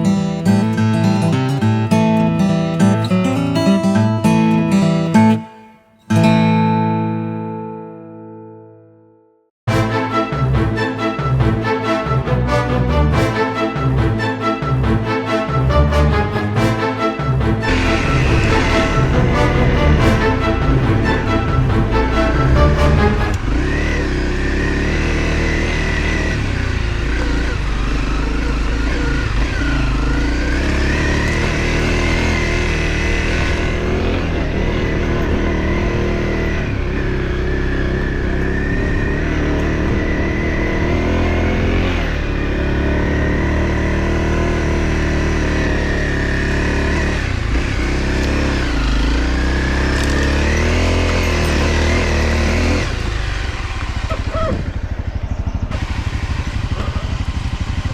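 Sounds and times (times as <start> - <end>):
off-road vehicle engine revving: 9.7 - 57.9.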